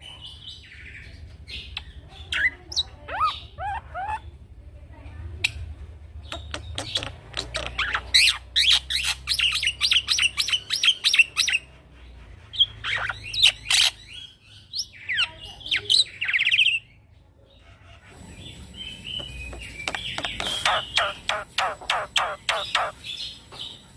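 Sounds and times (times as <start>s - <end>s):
bird sharp chipping song: 6.2s - 11.7s, 18.3s - 23.8s
bird calls: 6.2s - 23.8s.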